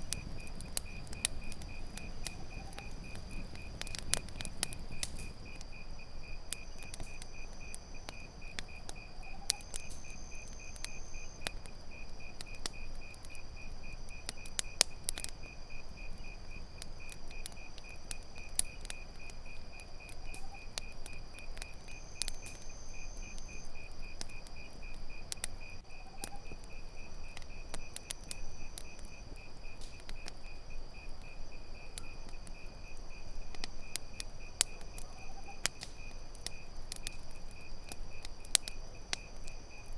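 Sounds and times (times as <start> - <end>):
campfire popping and crackling: 0.0 - 39.9
crickets chirping: 0.0 - 39.9
insects droning: 0.0 - 39.9.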